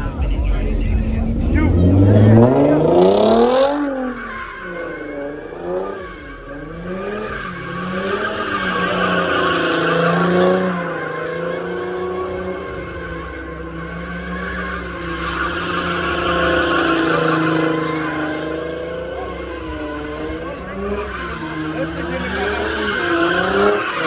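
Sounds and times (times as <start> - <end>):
car engine revving hard: 0.0 - 24.0
tyres squealing: 19.4 - 24.0.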